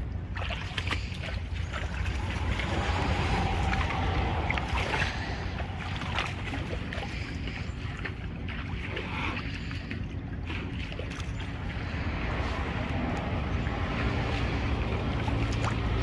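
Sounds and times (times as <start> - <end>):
tractor diesel engine rumbling: 1.4 - 8.4, 11.4 - 16.0.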